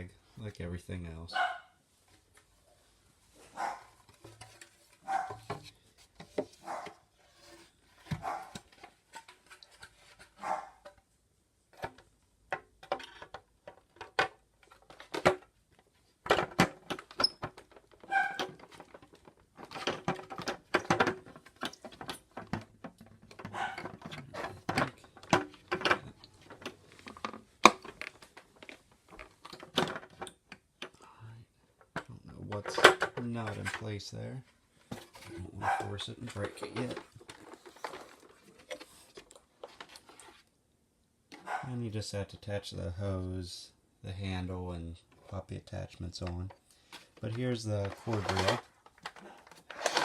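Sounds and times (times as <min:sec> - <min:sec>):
dogs barking: 0:01.3 - 0:01.7, 0:03.5 - 0:04.0, 0:05.0 - 0:05.4, 0:06.6 - 0:07.0, 0:08.2 - 0:08.6, 0:10.4 - 0:10.8, 0:23.5 - 0:23.9, 0:35.6 - 0:35.9, 0:41.4 - 0:41.7
plastic parts clicking and knocking: 0:04.0 - 0:11.1, 0:11.7 - 0:31.0, 0:31.7 - 0:33.9, 0:34.8 - 0:40.4, 0:45.0 - 0:50.0.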